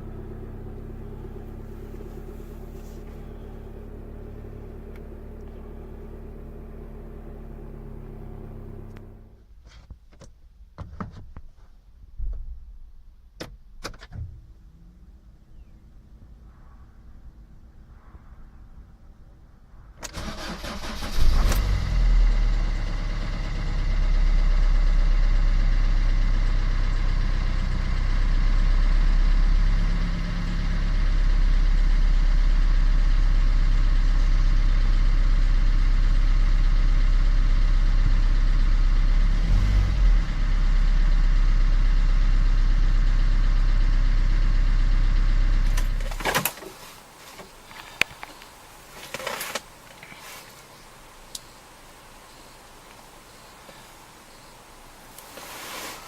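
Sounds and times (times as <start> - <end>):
car engine revving and idling: 0.0 - 9.4, 20.3 - 49.4
car engine cranking: 20.0 - 23.8, 45.0 - 50.2.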